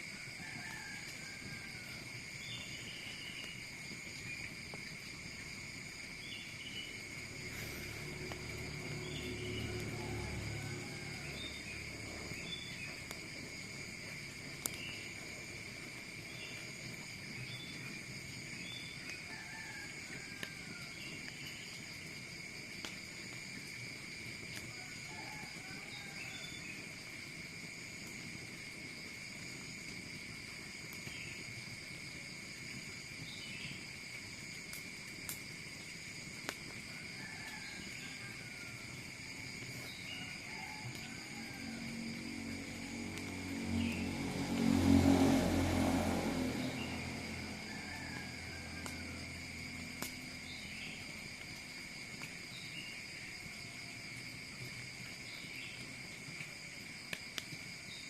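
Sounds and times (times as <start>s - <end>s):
crickets trilling: 0.0s - 58.0s
low rushing noise: 41.9s - 50.0s.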